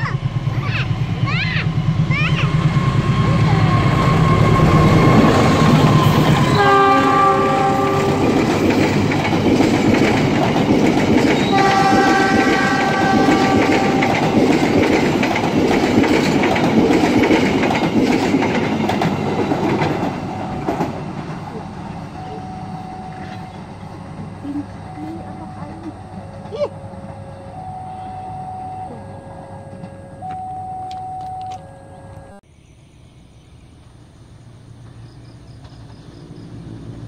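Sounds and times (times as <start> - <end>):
diesel locomotive engine throbbing: 0.0 - 32.4
train wheels clattering over rails: 0.1 - 22.2
train horn: 2.6 - 8.7, 11.4 - 14.8, 22.2 - 23.7, 24.9 - 32.3.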